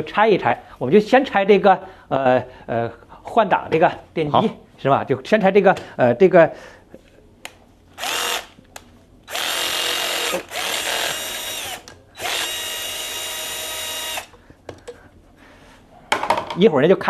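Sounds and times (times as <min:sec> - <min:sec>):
electric drill spinning out bolts: 0:08.0 - 0:08.6, 0:09.3 - 0:14.4.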